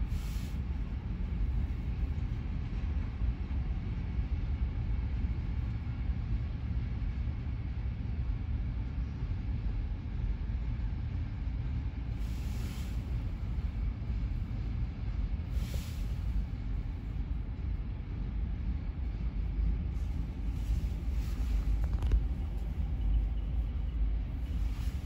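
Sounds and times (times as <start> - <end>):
freight train cars rumbling past: 0.0 - 25.0
short hiss: 15.5 - 16.3.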